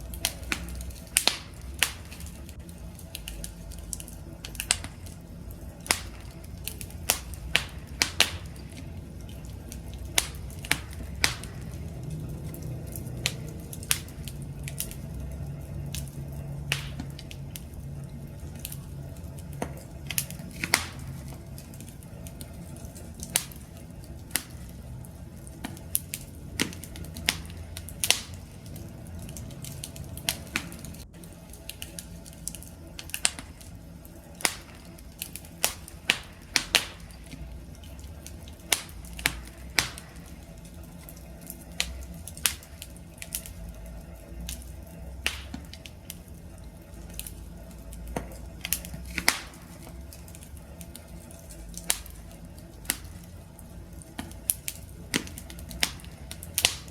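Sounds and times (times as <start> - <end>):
low rumble of flames: 0.0 - 56.9
wood fire crackling: 0.0 - 56.9.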